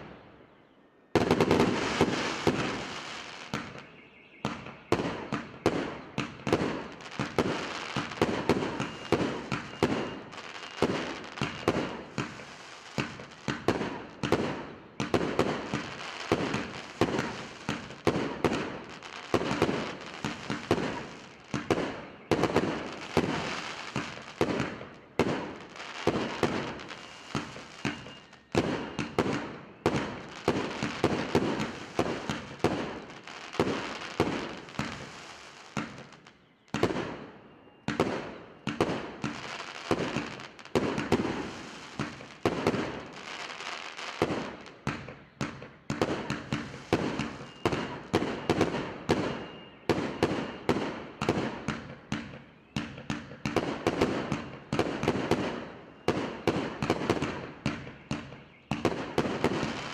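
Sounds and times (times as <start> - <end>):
firework crackling: 1.2 - 3.8, 6.3 - 36.2, 38.7 - 44.7, 45.9 - 49.3, 58.8 - 59.9
fireworks launching and bursting: 1.2 - 59.9.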